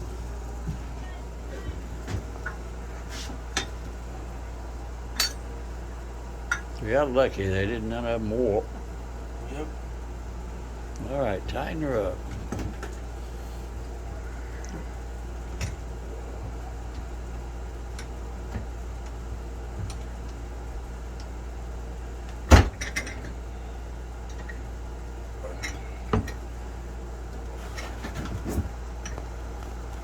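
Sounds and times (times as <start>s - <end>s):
metal tools clinking: 5.2s - 5.4s.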